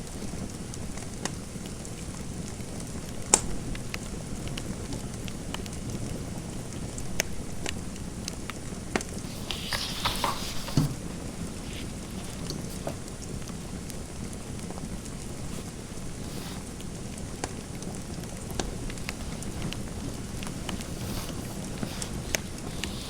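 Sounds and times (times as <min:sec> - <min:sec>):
wood fire crackling: 0:00.0 - 0:23.0
scratchy rustle with knocks: 0:09.2 - 0:13.8, 0:15.4 - 0:17.0, 0:18.5 - 0:23.0.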